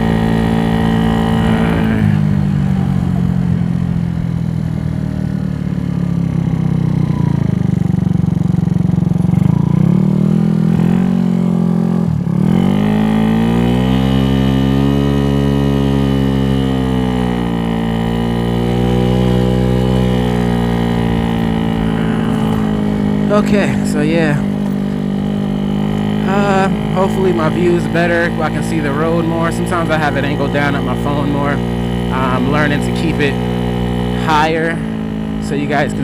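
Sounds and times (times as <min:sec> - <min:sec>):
scooter engine revving: 0:00.0 - 0:36.0.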